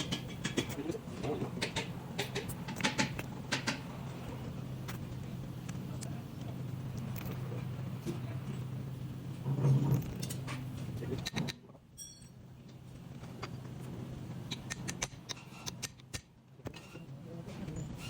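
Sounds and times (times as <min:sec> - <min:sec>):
steady low hum: 0:00.0 - 0:18.0
light metallic clicks and clinks: 0:09.9 - 0:13.7.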